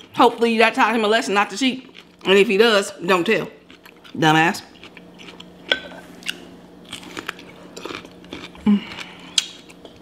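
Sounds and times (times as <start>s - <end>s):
crunchy chewing of cucumber: 3.5s - 10.0s.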